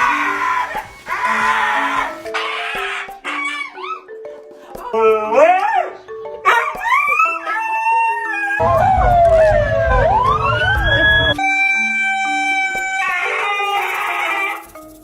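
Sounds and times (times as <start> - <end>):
husky howling and yowling: 0.0 - 4.1, 5.3 - 14.6
background music: 0.0 - 15.0
low rumble: 8.6 - 11.4.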